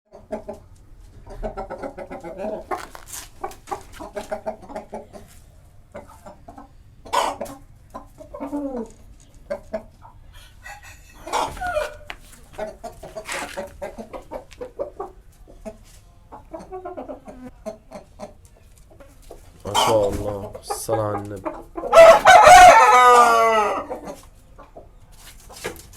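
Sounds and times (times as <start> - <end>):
chickens clucking: 0.1 - 25.9
rooster crowing: 10.4 - 12.2, 21.9 - 24.0.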